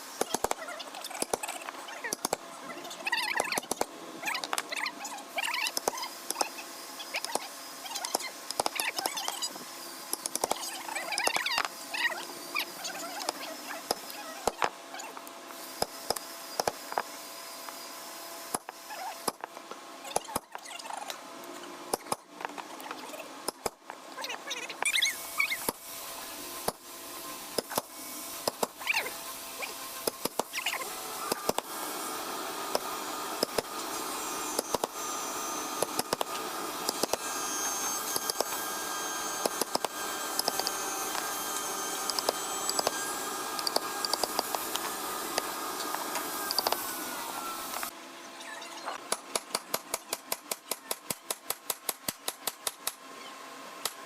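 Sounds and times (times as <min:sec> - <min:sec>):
machine humming: 0:25.1 - 0:48.0.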